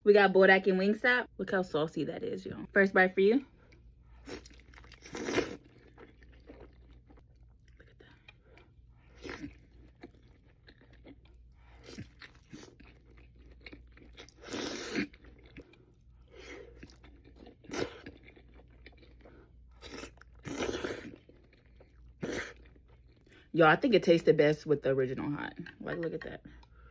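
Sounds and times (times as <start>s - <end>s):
crunchy chewing: 3.7s - 23.3s.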